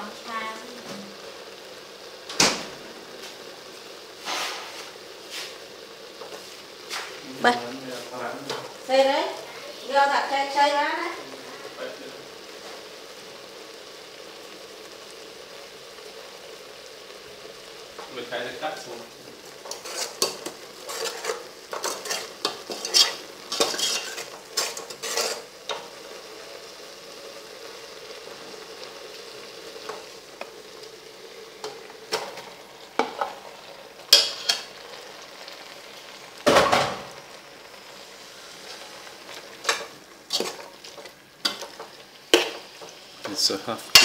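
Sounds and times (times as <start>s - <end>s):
curry paste sizzling in oil: 0.0s - 44.0s
metal ladle scraping pot: 19.6s - 25.5s, 39.6s - 41.8s.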